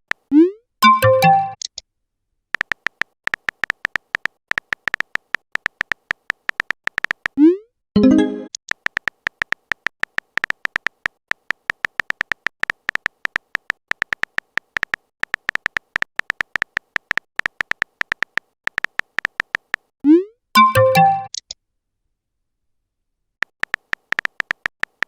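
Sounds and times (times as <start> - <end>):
electronic typing ticks with beeps: 0.1 - 1.8, 2.6 - 21.5, 23.4 - 25.0.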